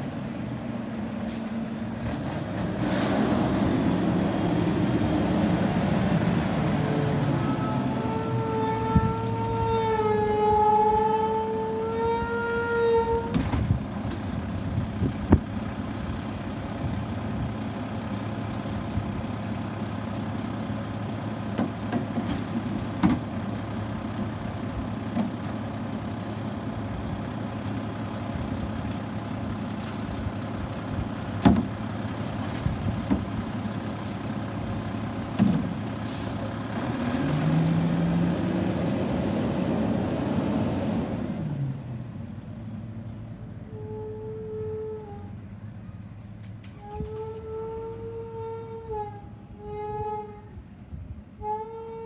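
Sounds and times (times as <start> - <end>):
garbage truck engine running: 0.0 - 39.4.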